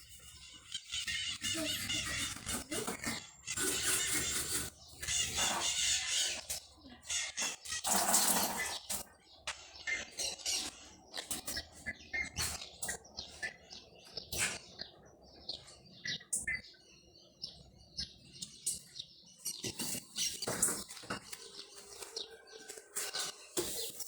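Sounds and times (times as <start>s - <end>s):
objects clattering and scrubbing: 1.5s - 6.7s, 7.3s - 13.1s, 19.4s - 24.0s.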